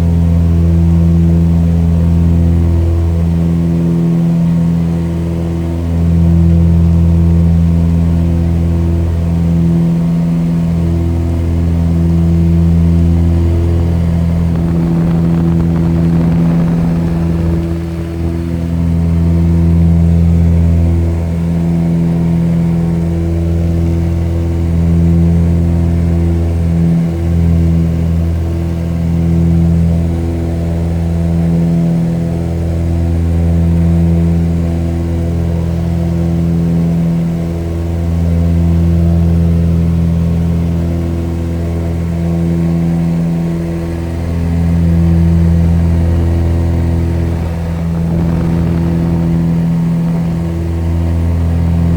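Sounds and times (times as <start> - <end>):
airplane engine droning: 10.0 - 23.1, 44.0 - 51.9.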